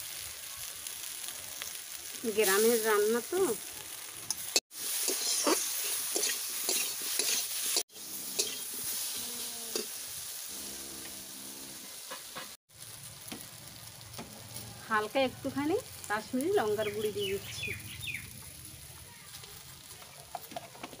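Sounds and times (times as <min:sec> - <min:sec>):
vegetables sizzling in hot oil: 0:00.0 - 0:21.0
spatula scraping and stirring: 0:04.3 - 0:10.0.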